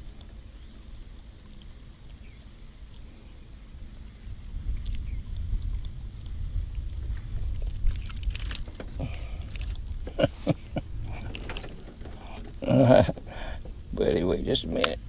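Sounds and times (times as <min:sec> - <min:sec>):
steady low rumble: 0:00.0 - 0:15.0
knocks and clicks in aluminium boat: 0:06.7 - 0:15.0.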